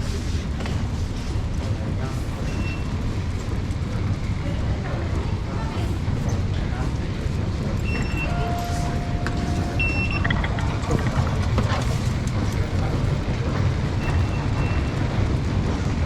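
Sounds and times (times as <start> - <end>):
underground train rumble: 0.0 - 16.0
short high beeps: 7.9 - 10.6.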